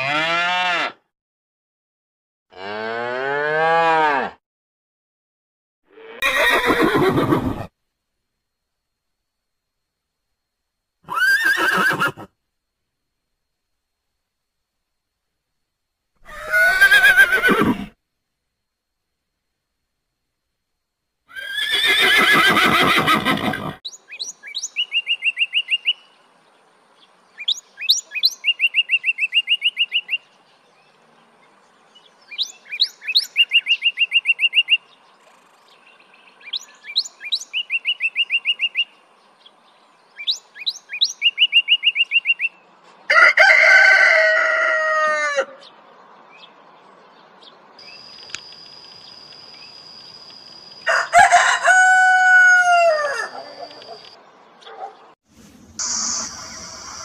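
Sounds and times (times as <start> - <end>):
horse whinnying: 6.0 - 7.7, 11.0 - 12.3, 16.2 - 18.0, 21.3 - 23.8
loud animal call falling in pitch: 51.1 - 54.0, 55.8 - 57.0
tit singing trills: 55.8 - 57.0.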